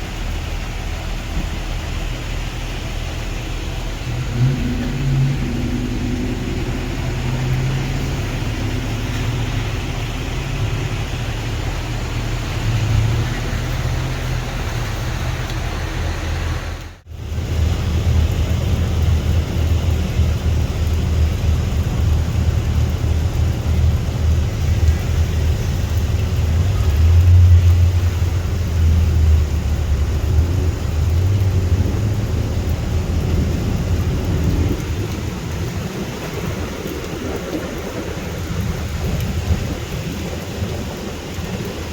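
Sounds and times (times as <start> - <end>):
rain: 0.0 - 41.9
traffic on a wet road: 0.0 - 41.9.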